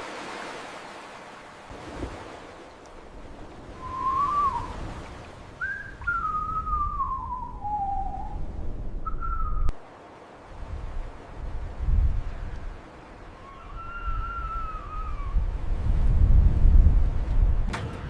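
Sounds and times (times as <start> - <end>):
whistle-like gliding tones: 3.8 - 4.7.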